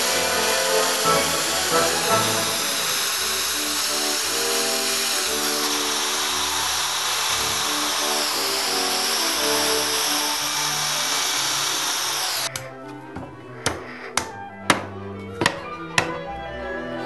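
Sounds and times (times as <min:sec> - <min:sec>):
power tool whining under load: 0:00.0 - 0:12.5
background music: 0:00.0 - 0:17.0.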